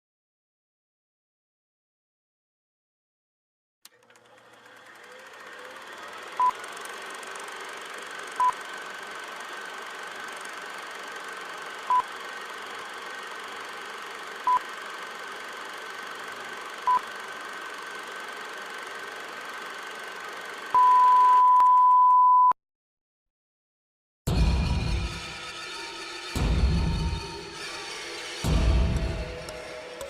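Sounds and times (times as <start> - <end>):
short electronic beeps: 20.8 - 22.6.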